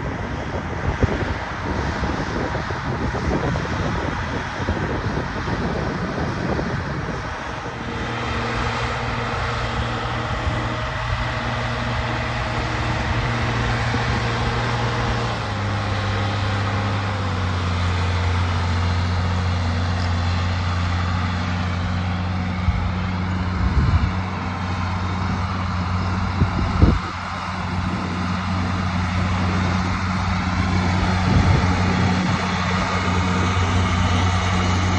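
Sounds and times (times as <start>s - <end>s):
tractor engine under load: 0.1s - 34.9s.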